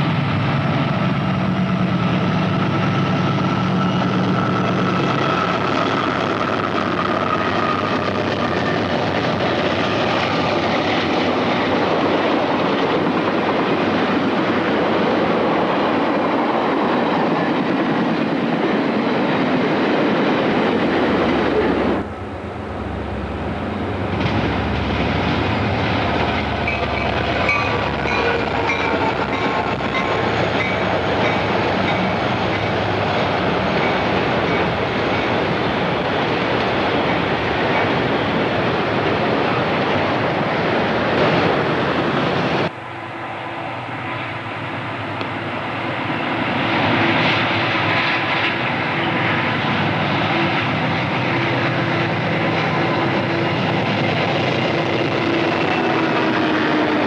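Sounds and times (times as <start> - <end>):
wheels squealing on rail: 0.7 - 17.6, 18.9 - 57.0
train cars clattering over rails: 2.5 - 42.7.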